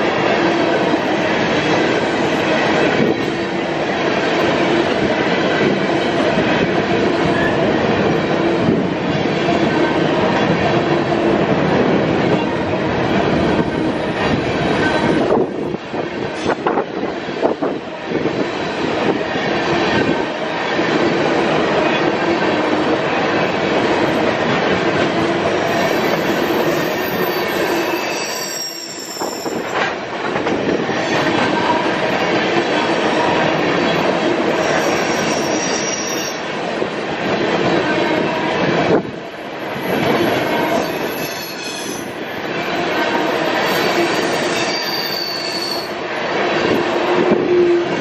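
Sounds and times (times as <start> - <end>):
rail cars rumbling and rattling: 0.0 - 48.0
high wheel squeals: 25.7 - 29.7, 34.6 - 36.4, 39.8 - 42.4, 43.2 - 46.0.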